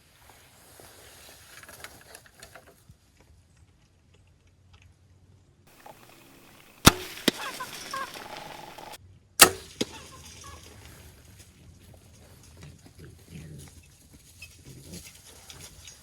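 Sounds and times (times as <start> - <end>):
bow shot crack: 5.7 - 10.5
hogs crunching corn: 5.7 - 16.0.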